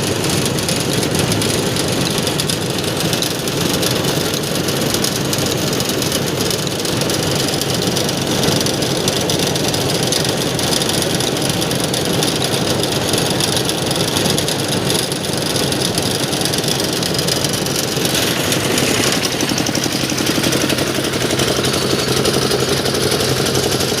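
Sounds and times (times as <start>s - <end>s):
thresher machine running: 0.0s - 24.0s.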